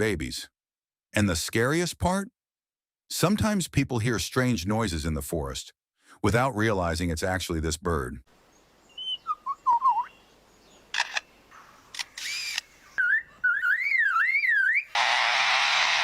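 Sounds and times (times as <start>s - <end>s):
short whistled bird notes: 8.9s - 10.2s
shutter-like clicks: 10.9s - 11.3s, 11.9s - 12.7s
warbling alarm-like whistle: 13.0s - 15.3s.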